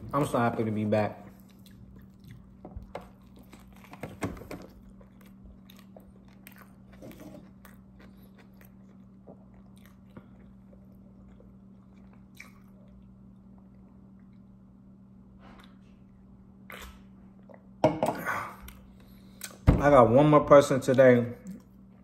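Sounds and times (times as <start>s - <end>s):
close chewing and mouth clicks: 1.2s - 14.6s.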